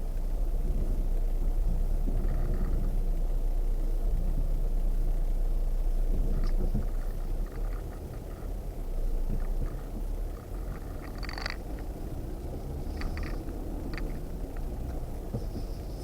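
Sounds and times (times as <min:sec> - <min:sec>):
off-road vehicle engine rumble: 0:00.0 - 0:16.0
light rattles and knocks: 0:06.1 - 0:16.0.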